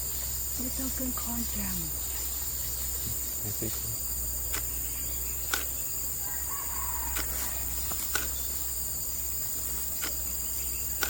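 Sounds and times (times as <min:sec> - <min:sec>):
high-pitched insect chorus: 0:00.0 - 0:11.0
sharp clicks: 0:04.4 - 0:04.8, 0:05.4 - 0:05.8, 0:07.1 - 0:08.5, 0:09.9 - 0:10.3.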